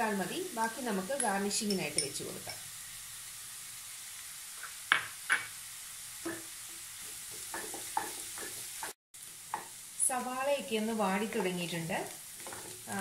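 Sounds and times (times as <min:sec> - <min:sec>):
onions sizzling in oil: 0:00.0 - 0:13.0
spatula scraping a pan: 0:12.4 - 0:12.9.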